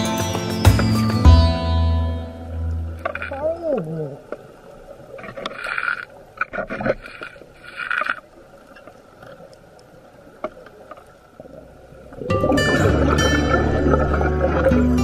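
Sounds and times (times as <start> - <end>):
music: 0.0 - 3.0, 12.3 - 15.0
water noise: 0.0 - 15.0
exhaled bubbles underwater: 11.4 - 15.0.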